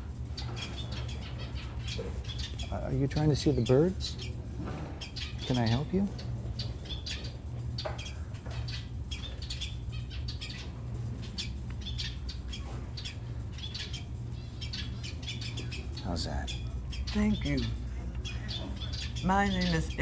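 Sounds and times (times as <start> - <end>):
small birds chirping: 0.0 - 20.0
steady low hum: 0.0 - 20.0.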